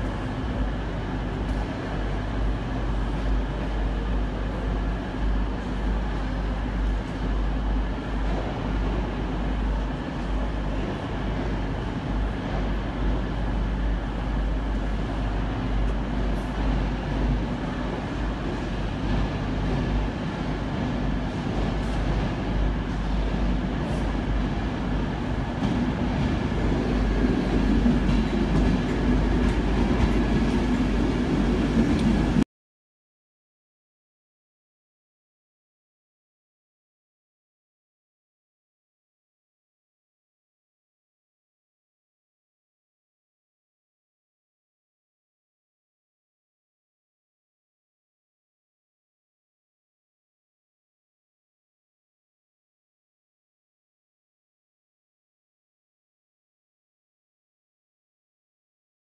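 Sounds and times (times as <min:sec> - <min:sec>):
low rumble with faint hum: 0:00.0 - 0:32.4
passenger train pulling in: 0:00.0 - 0:32.4.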